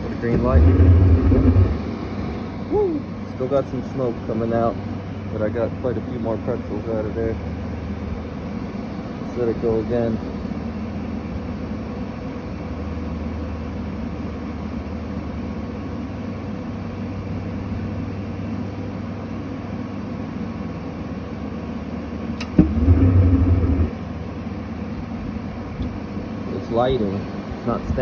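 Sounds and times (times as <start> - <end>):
burner lighting with low rush: 0.0 - 3.6, 22.4 - 24.1
furnace blower motor running: 0.0 - 11.1, 22.1 - 28.0
sharp click: 22.4 - 23.9.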